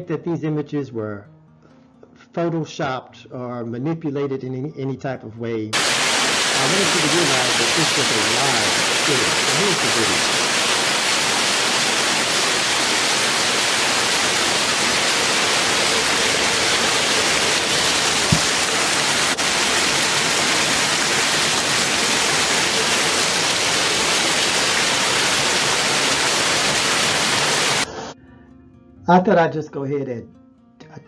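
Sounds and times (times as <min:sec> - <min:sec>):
loud rushing hiss: 0:05.8 - 0:27.9.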